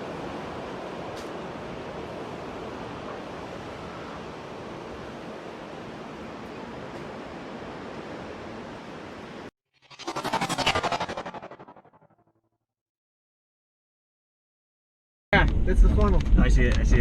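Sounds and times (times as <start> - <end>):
steady rushing noise: 7.3 - 11.9
pulsing transition swell: 9.9 - 12.2.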